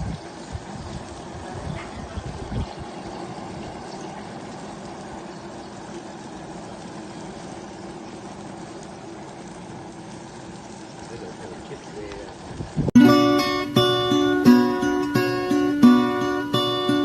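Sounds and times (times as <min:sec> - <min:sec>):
faint steady hum: 0:00.0 - 0:17.0
rushing water: 0:00.0 - 0:17.0.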